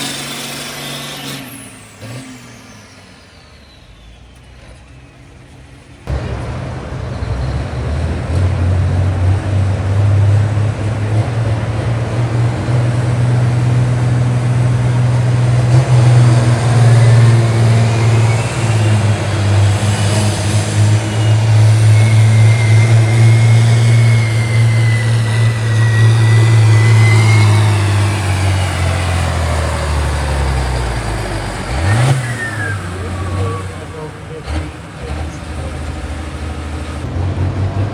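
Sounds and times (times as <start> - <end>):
tractor engine running under load: 0.0 - 37.9
high whine: 16.6 - 34.4.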